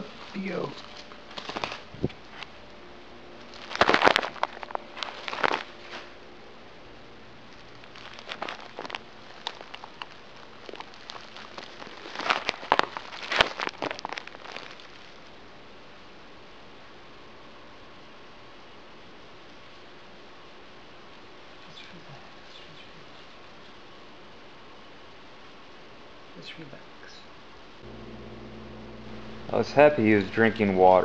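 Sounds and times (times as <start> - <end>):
bird wings fluttering and scrabbling: 0.8 - 2.1, 3.6 - 6.1.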